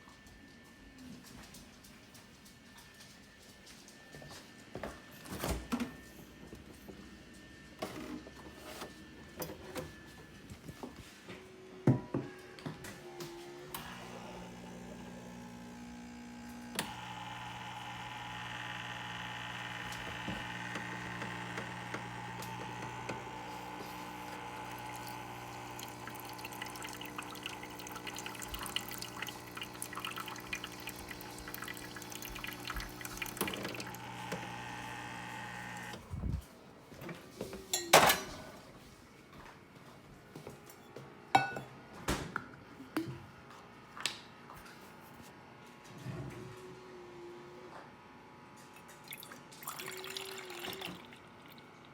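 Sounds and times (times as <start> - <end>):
espresso machine pump hum: 13.0 - 36.4
liquid pouring and dripping: 23.7 - 34.6, 48.9 - 51.7.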